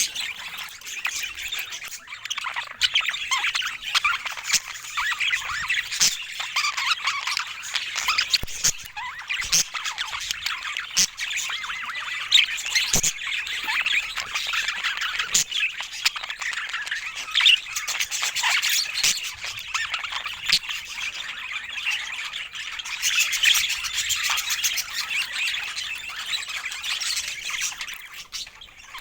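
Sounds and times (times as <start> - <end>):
budgerigars chattering: 0.0 - 29.0.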